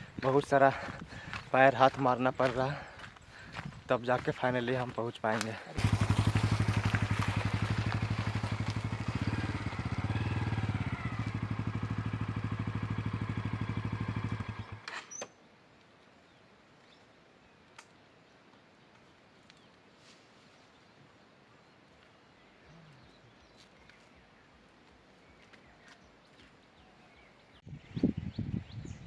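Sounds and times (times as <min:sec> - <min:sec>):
motorcycle engine running: 0:05.8 - 0:14.9.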